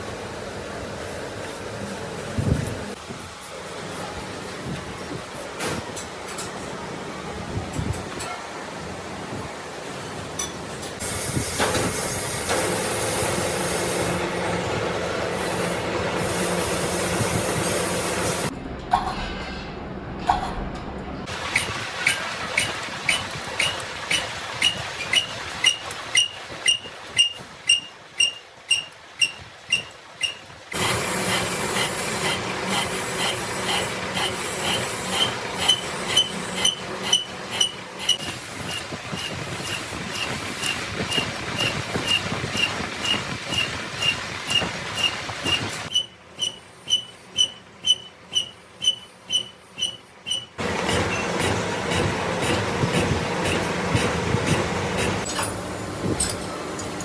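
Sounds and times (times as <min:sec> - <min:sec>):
steady machine noise: 0:11.0 - 0:18.8, 0:29.1 - 0:57.0
machine running hum: 0:12.4 - 0:18.9, 0:50.6 - 0:57.0
lathe part squeaking: 0:22.6 - 0:55.6.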